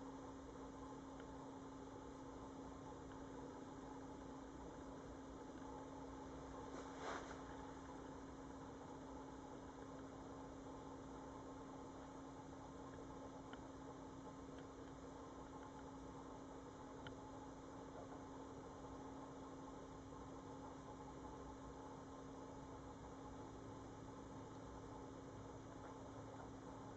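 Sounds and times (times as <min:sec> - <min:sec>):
faint mains hum: 0:00.0 - 0:26.9
faint ticks: 0:03.0 - 0:03.3, 0:12.8 - 0:16.0, 0:17.0 - 0:17.2
soft rustle: 0:06.3 - 0:08.1.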